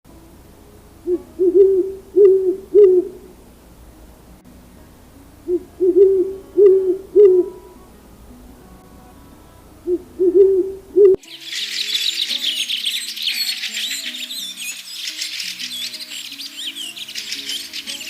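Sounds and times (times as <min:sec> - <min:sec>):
owl hooting: 0:01.0 - 0:03.3, 0:05.4 - 0:07.9, 0:09.8 - 0:18.0.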